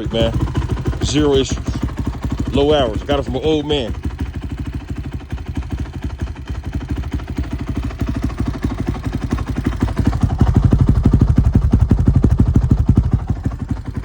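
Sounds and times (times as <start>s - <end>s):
quad bike engine idling: 0.0s - 14.0s.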